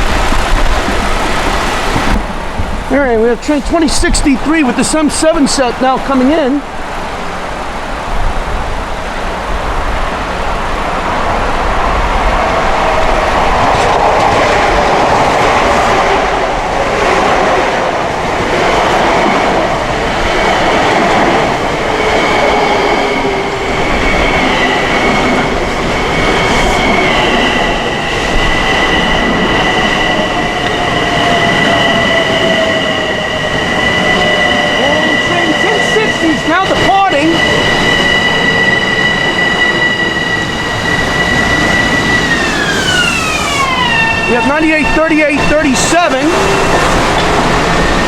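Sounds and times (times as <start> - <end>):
wheels on rails: 0.0 - 48.0
train motor whine: 19.6 - 48.0
high brake squeal: 22.2 - 48.0.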